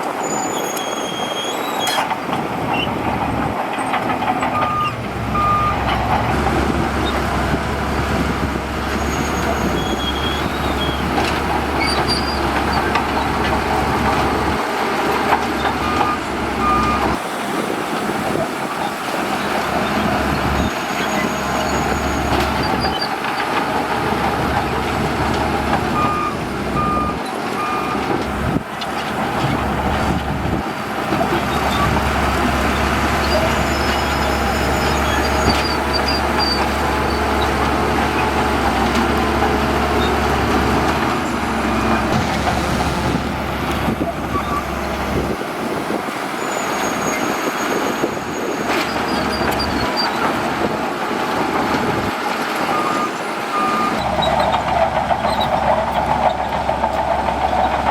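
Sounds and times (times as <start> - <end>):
heavy diesel machinery running: 0.0 - 57.9
reversing alarm beeping: 4.6 - 5.9, 52.7 - 54.3.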